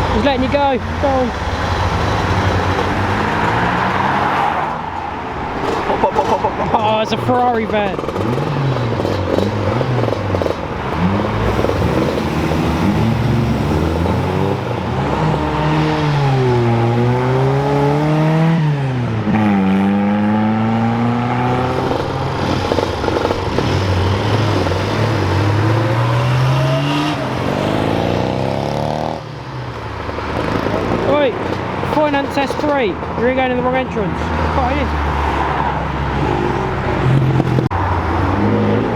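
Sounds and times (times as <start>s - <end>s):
car engine revving: 0.0s - 38.9s
other car engines running: 0.0s - 38.9s.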